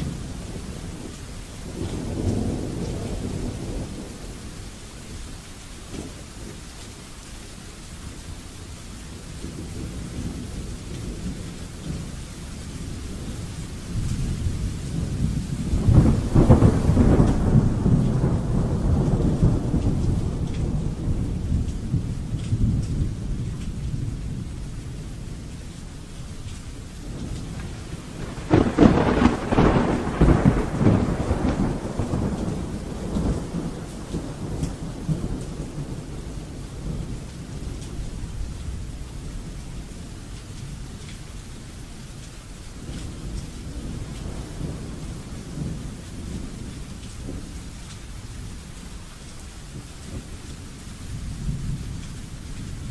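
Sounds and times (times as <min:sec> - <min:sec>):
steady rain: 0:00.0 - 0:52.9
thunder rolling: 0:13.2 - 0:24.6, 0:27.0 - 0:37.4.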